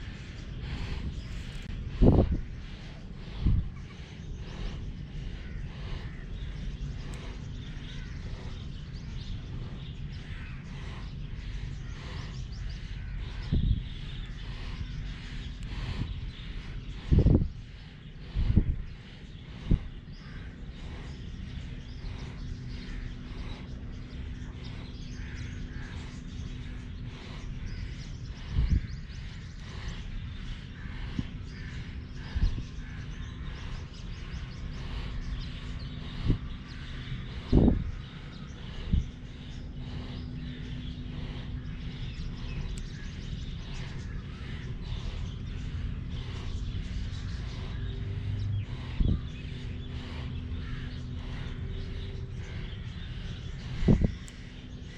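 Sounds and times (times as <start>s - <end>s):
faint hum: 0.0s - 54.9s
small birds chirping: 0.0s - 54.9s.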